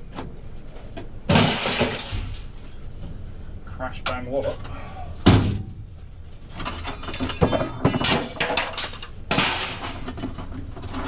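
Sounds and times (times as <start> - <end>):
scrap metal crashing and clanging: 1.3 - 2.7, 5.2 - 5.8, 6.5 - 11.0.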